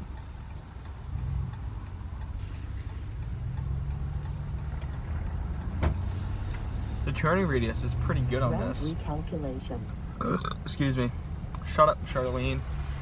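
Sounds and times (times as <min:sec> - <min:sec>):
turn signal clicking: 0:00.0 - 0:06.7
engine and road hum: 0:00.0 - 0:13.0.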